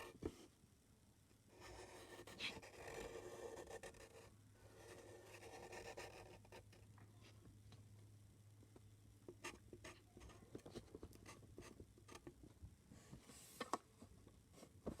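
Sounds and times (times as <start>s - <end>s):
drawing tool scratching on paper: 1.5s - 6.8s.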